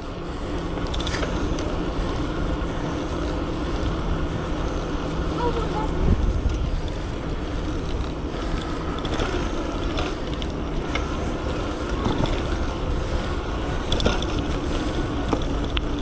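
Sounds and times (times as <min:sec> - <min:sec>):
road noise: 0:00.0 - 0:16.0
wind on microphone: 0:05.8 - 0:07.1.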